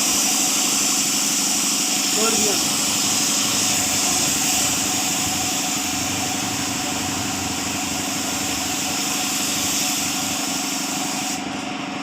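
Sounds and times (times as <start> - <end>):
steady hiss: 0.0 - 11.6
car engine idling: 2.2 - 10.5.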